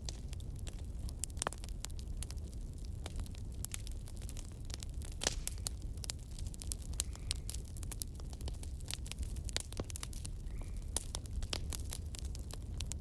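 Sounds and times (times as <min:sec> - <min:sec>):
campfire crackling and popping: 0:00.0 - 0:13.0
low fire rumble: 0:00.0 - 0:13.0.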